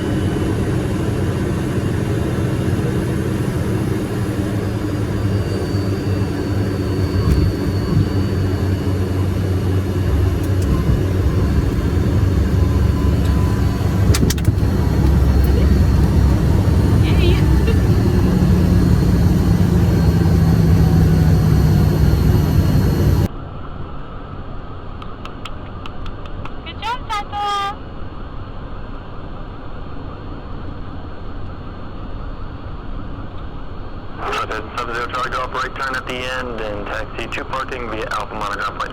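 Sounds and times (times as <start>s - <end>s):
jet engines rumbling: 0.0s - 23.3s, 34.0s - 38.9s
sharp clicks: 13.2s - 15.2s.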